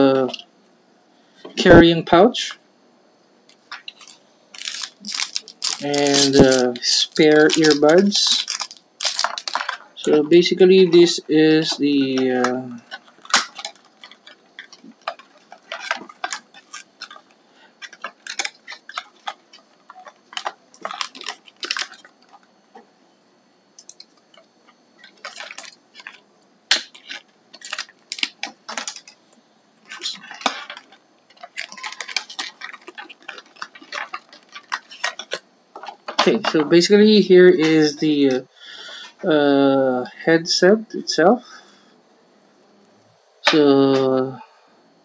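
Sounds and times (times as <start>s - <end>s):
packaging clicks: 3.5s - 22.5s, 23.8s - 29.2s, 29.8s - 36.7s
rustling handling noises: 3.5s - 22.9s, 23.8s - 39.3s.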